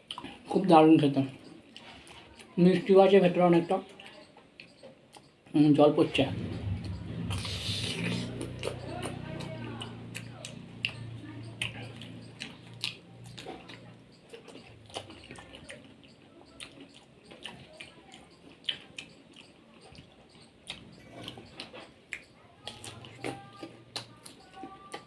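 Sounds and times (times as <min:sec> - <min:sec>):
wet chewing and squishing: 0:00.0 - 0:00.6, 0:06.5 - 0:25.0
smacking mouth clicks: 0:07.3 - 0:25.0.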